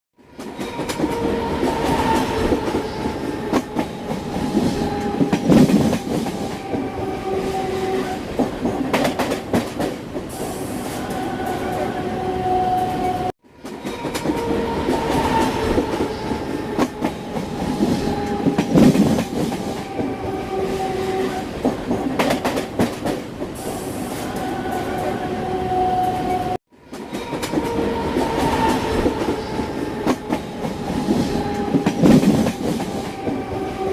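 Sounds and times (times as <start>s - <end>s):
train wheels clattering: 8.0s - 10.8s, 13.6s - 24.5s, 26.9s - 33.9s.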